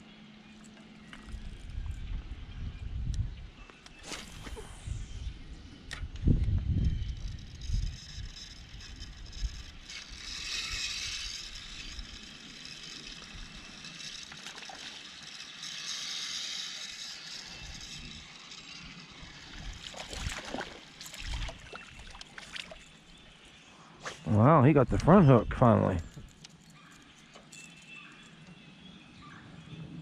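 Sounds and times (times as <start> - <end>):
water splashing around boat: 19.8 - 23.0.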